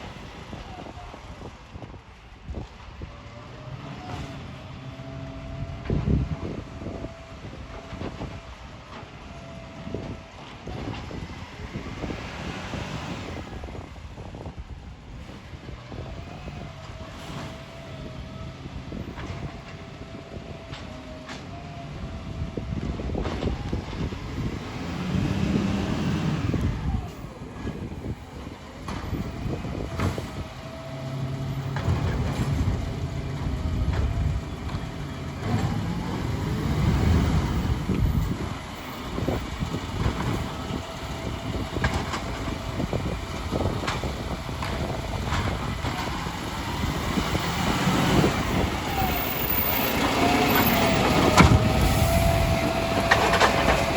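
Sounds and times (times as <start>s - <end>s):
garbage truck engine revving: 3.1s - 53.9s
knocks and clatter: 27.6s - 49.1s.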